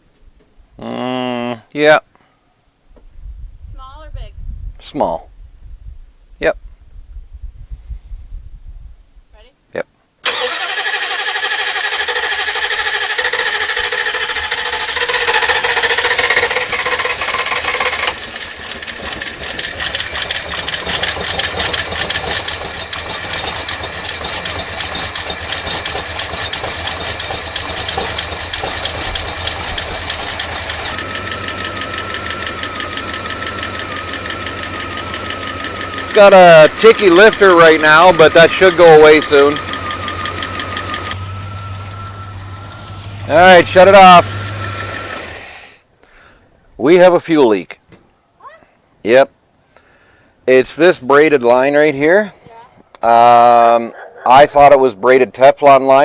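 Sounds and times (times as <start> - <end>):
engine starting and revving: 10.2 - 45.7
rapid lifter ticking: 11.5 - 41.2.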